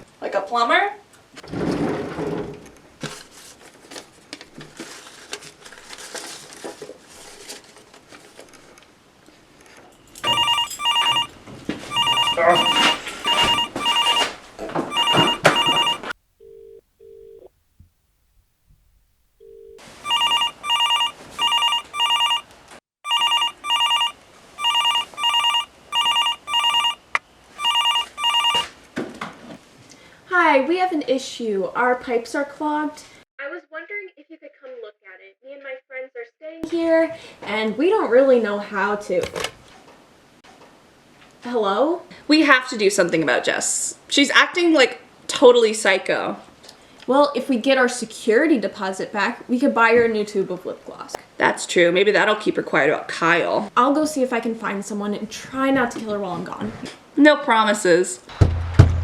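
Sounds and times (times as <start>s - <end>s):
short low beeps: 10.2s - 11.3s, 11.9s - 14.3s, 14.9s - 16.1s, 20.0s - 22.4s, 23.1s - 27.0s, 27.6s - 28.7s
telephone ringing: 10.2s - 17.4s, 19.4s - 27.0s, 27.6s - 28.7s.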